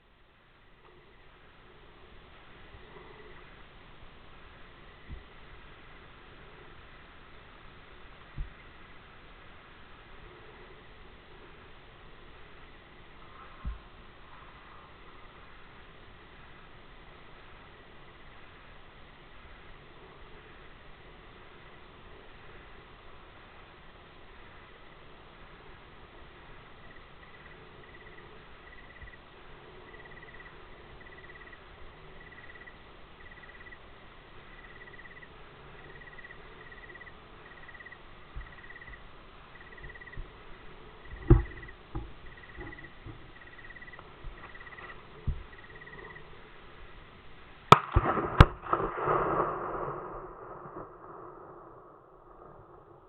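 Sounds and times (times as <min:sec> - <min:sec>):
steady outdoor hiss: 0:00.0 - 0:53.0
dull thumps: 0:41.1 - 0:43.2
gunshot and explosion bangs: 0:47.7 - 0:51.5
rolling echo: 0:47.7 - 0:53.0.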